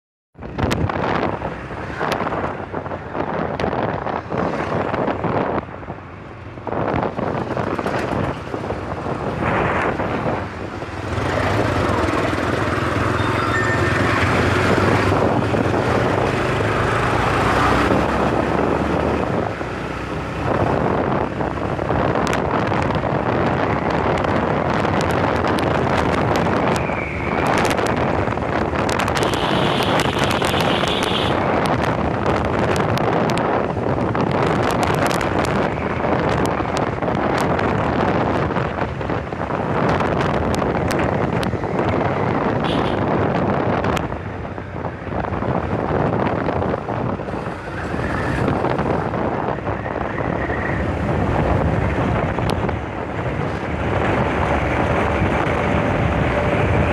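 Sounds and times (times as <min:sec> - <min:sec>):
motorcycle engine and road noise: 0:00.4 - 0:56.9
wind buffeting microphone: 0:00.4 - 0:56.9
brief higher tones: 0:13.1 - 0:14.5.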